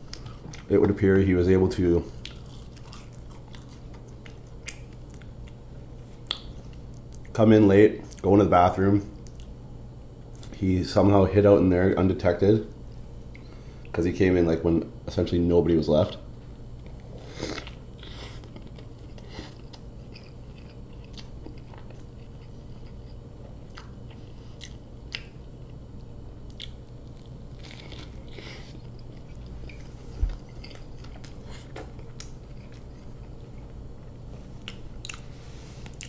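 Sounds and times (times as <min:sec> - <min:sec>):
close-up chewing: 0:00.0 - 0:01.0, 0:02.1 - 0:07.4, 0:16.8 - 0:36.0.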